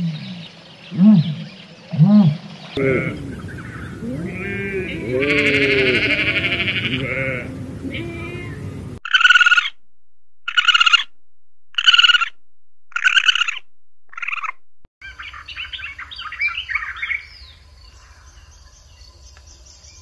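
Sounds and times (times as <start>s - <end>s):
sheep bleating: 2.8s - 9.0s
short buzzy chirping calls: 10.5s - 11.1s, 11.8s - 12.3s, 12.9s - 14.6s.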